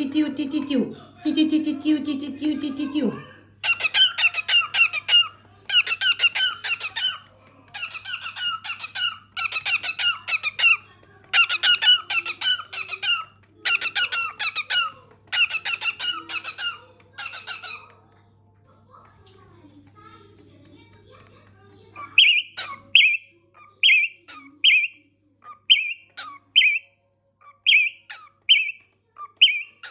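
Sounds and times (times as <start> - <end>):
cockatiel chirping whistles: 22.2 - 23.2, 23.9 - 25.0, 25.7 - 26.8, 27.7 - 28.8, 29.4 - 29.9.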